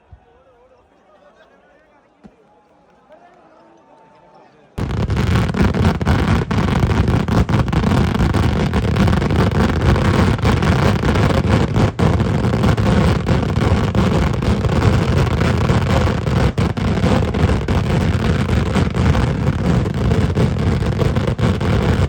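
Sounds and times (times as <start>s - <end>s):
fireworks exploding in a barrage: 4.8s - 22.0s.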